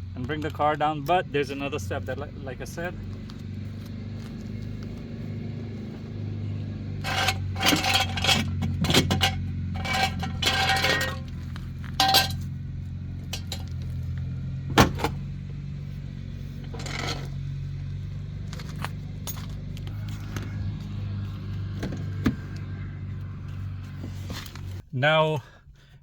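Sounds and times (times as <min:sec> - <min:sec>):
car engine idling: 0:00.0 - 0:24.9.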